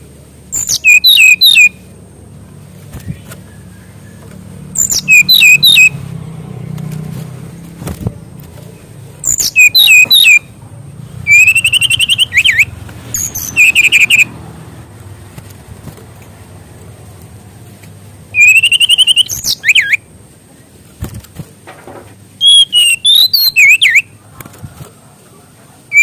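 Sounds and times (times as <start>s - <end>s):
songbird singing whistled phrases: 0.5s - 1.8s, 4.8s - 6.0s, 9.2s - 10.5s, 11.3s - 14.3s, 18.3s - 20.0s, 22.4s - 24.2s.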